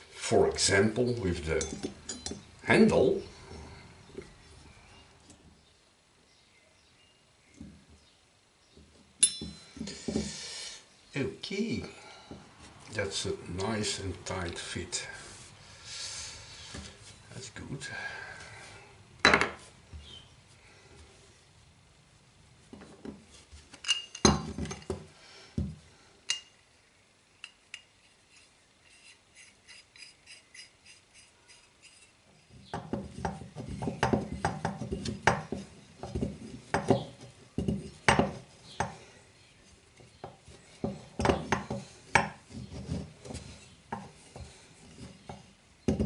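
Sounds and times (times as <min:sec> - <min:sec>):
small metal parts clinking: 0:23.8 - 0:24.9.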